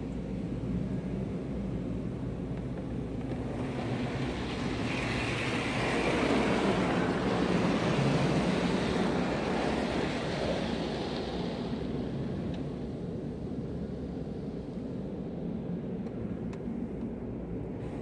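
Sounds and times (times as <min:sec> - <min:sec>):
car wash spray rushing: 0:03.4 - 0:13.0.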